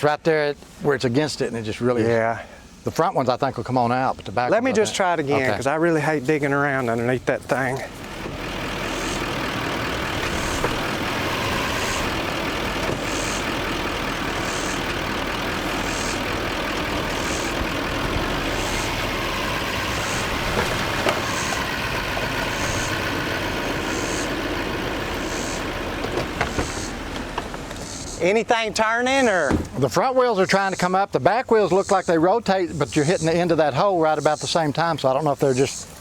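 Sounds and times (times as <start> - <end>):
truck engine under load: 5.5 - 30.2.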